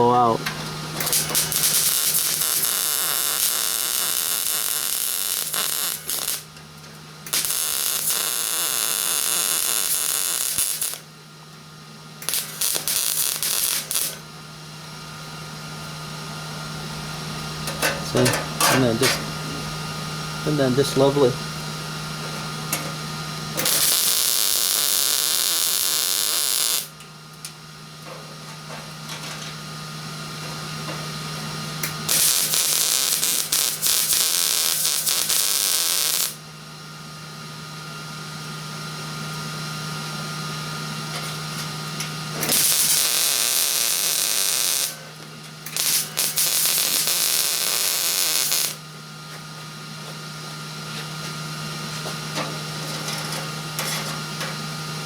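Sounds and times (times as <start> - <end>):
arc welder sizzling crackle: 0.0 - 11.2, 12.2 - 15.0, 20.4 - 36.4, 38.4 - 55.0
steady low hum: 0.0 - 35.4.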